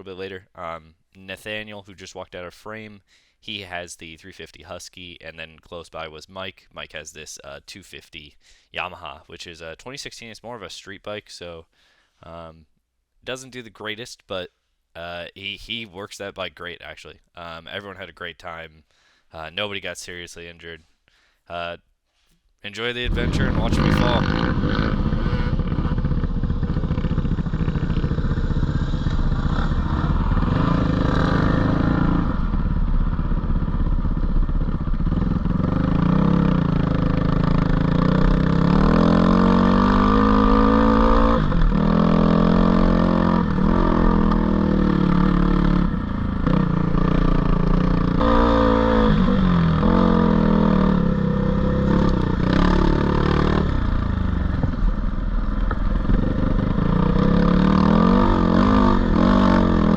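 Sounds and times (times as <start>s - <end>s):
dirt bike engine revving: 23.0s - 59.9s.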